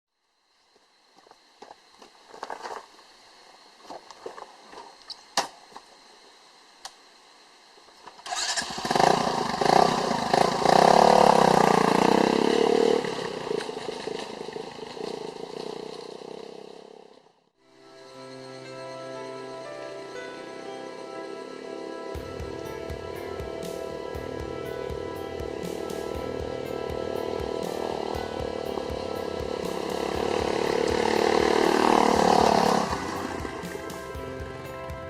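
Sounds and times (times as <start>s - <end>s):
motorcycle engine revving: 8.2s - 17.2s, 21.6s - 34.6s.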